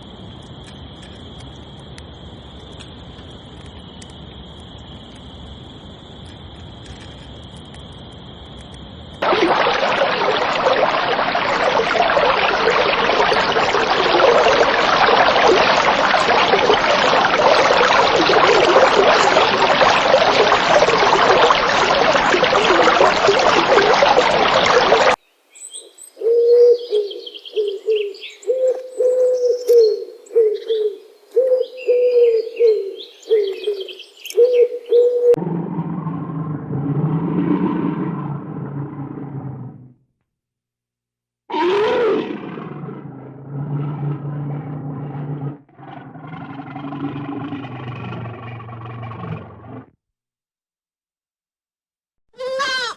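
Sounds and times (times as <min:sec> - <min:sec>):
small birds chirping: 0:25.2 - 0:35.2
pigeons cooing: 0:26.2 - 0:35.4.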